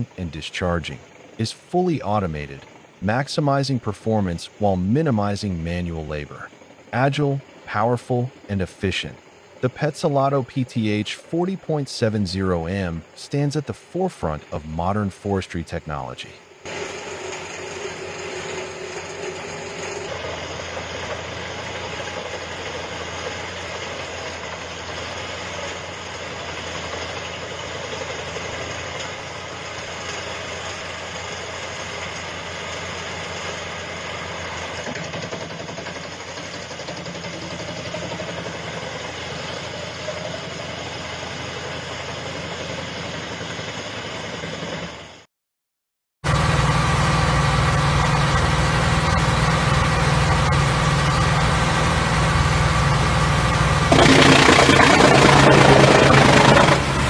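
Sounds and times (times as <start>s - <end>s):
wood chipper running: 16.7s - 39.9s, 46.3s - 57.0s.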